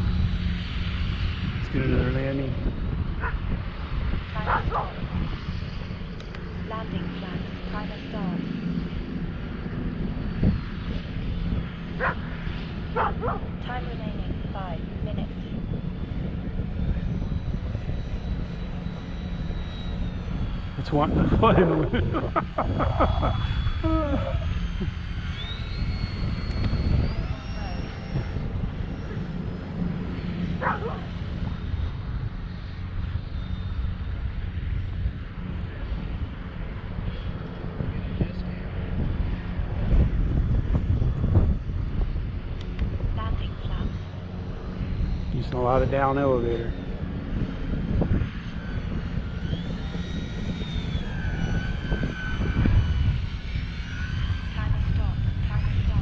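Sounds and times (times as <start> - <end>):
electric motor whine: 0.0 - 56.0
wind buffeting microphone: 0.0 - 56.0
dog barking: 13.0 - 13.4, 30.6 - 30.9.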